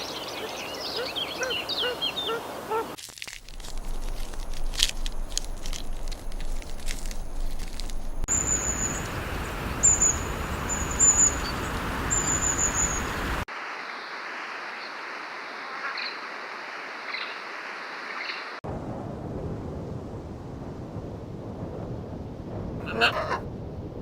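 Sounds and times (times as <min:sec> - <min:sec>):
steady outdoor hiss: 0:00.0 - 0:21.8
faint calls: 0:08.3 - 0:13.4.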